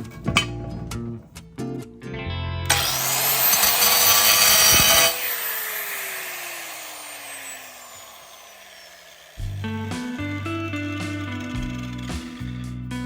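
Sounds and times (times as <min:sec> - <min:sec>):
power tool motor winding down: 0:02.7 - 0:12.7.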